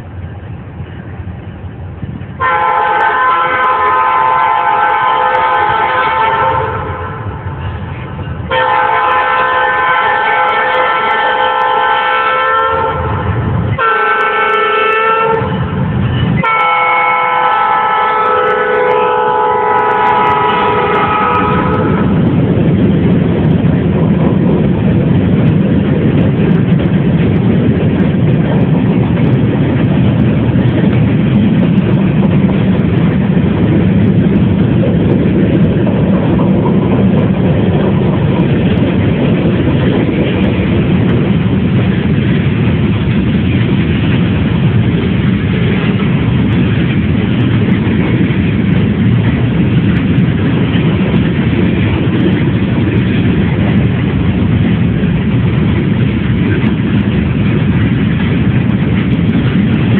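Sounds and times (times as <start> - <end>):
train rumbling past: 0.0 - 59.9.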